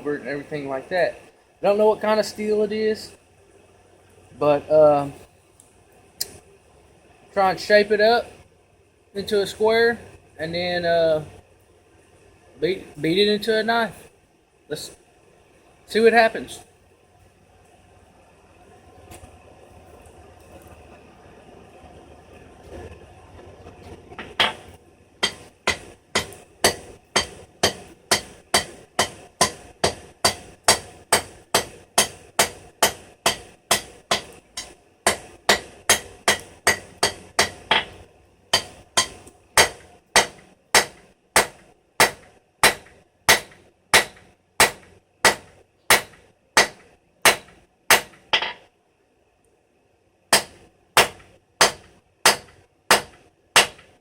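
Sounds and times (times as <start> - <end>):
hammer striking steel on anvil: 25.2 - 48.6, 50.3 - 53.8.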